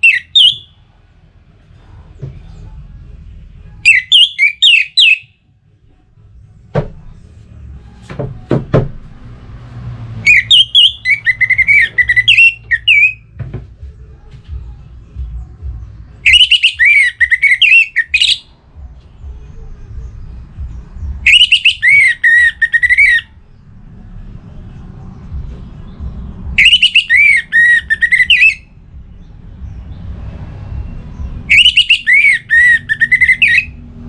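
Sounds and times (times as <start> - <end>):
thrush singing whistled phrases: 0.0 - 0.8, 3.8 - 5.4, 10.2 - 13.3, 16.1 - 18.6, 21.1 - 23.4, 26.5 - 28.8, 31.4 - 33.8.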